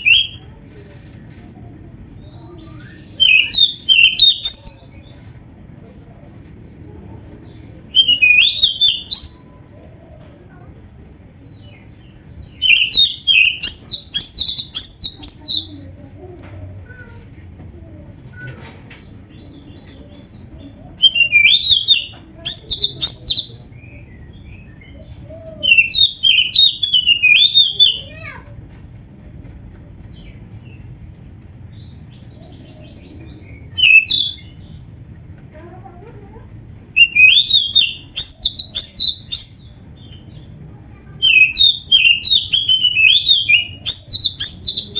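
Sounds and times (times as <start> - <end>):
bird whistling song: 2.6 - 4.9, 7.9 - 9.5, 12.5 - 15.8, 21.0 - 25.0, 25.6 - 28.0, 33.4 - 34.6, 37.0 - 40.2, 41.2 - 44.9
loud whistled bird phrase: 33.8 - 34.5, 37.0 - 39.6, 41.2 - 44.9.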